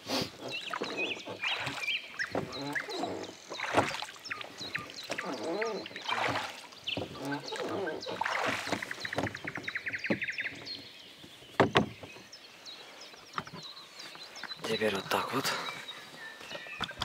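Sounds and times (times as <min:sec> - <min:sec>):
songbirds singing: 0:00.0 - 0:17.0
sharp knocks: 0:08.2 - 0:10.6, 0:11.6 - 0:12.1.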